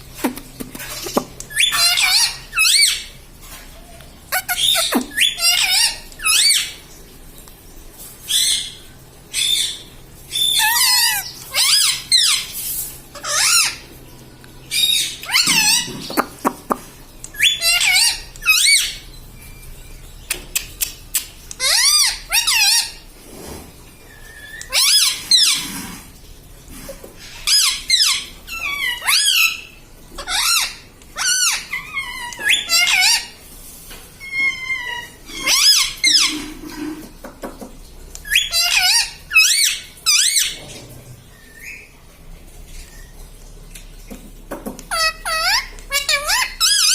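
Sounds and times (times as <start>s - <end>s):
parakeet squawking and chattering: 0.2s - 3.1s, 4.3s - 6.8s, 8.3s - 13.9s, 14.7s - 19.6s, 20.2s - 23.0s, 24.2s - 25.8s, 27.2s - 33.4s, 34.2s - 37.1s, 38.2s - 40.7s, 44.8s - 46.9s.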